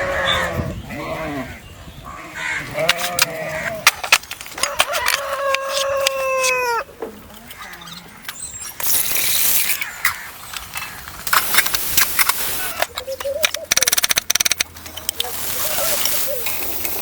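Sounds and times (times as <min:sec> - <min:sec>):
rooster crowing: 0:04.6 - 0:06.9
loud hissing: 0:08.8 - 0:10.3, 0:11.2 - 0:13.0
sharp clicks: 0:08.8 - 0:15.3.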